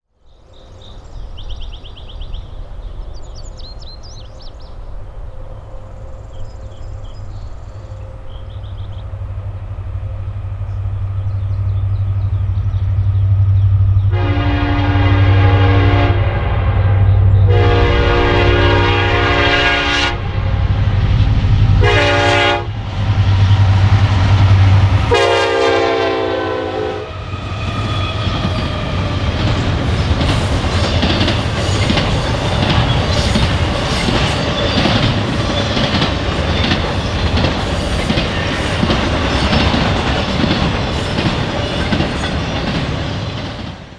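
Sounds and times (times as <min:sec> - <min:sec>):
birds chirping: 0:00.2 - 0:14.5, 0:27.7 - 0:43.4
diesel locomotive engine rumble: 0:00.4 - 0:43.9
locomotive air horn blasts: 0:14.1 - 0:20.7, 0:21.8 - 0:22.7, 0:25.0 - 0:27.2
train wheels clattering: 0:27.2 - 0:43.9.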